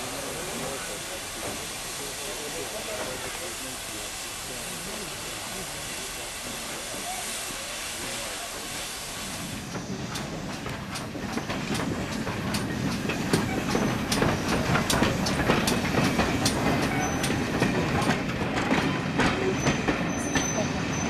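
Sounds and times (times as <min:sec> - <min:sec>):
steam hiss: 0:00.0 - 0:21.0
train wheels clicking over rail joints: 0:09.1 - 0:21.0.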